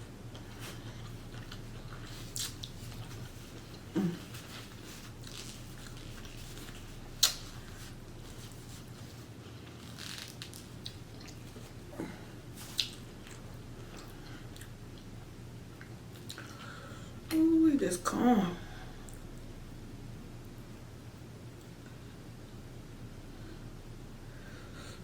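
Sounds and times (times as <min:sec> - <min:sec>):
faint low hum: 0:00.0 - 0:25.0
close-miked chewing: 0:00.1 - 0:16.9
wet mouth smacks: 0:07.2 - 0:07.6, 0:12.6 - 0:13.4.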